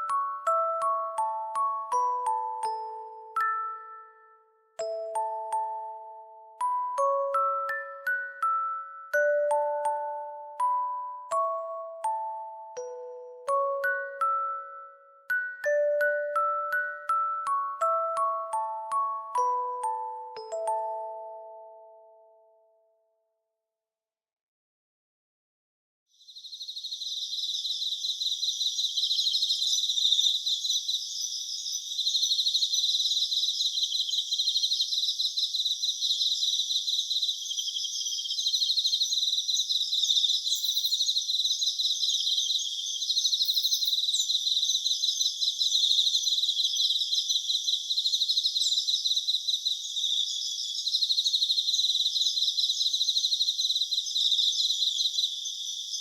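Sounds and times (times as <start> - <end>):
crickets chirping: 26.2 - 56.0.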